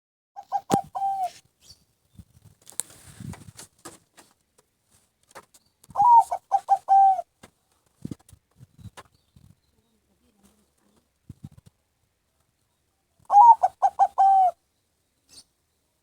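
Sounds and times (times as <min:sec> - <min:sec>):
dove cooing: 0:00.4 - 0:01.4, 0:05.9 - 0:07.3, 0:13.2 - 0:14.6
brief rustle: 0:00.7 - 0:06.0.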